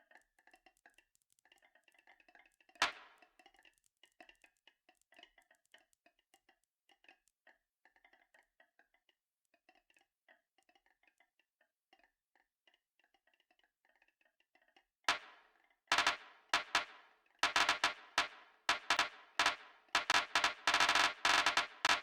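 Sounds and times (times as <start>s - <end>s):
loud marble clatter: 15.9s - 22.0s
marbles clicking down track: 15.9s - 22.0s.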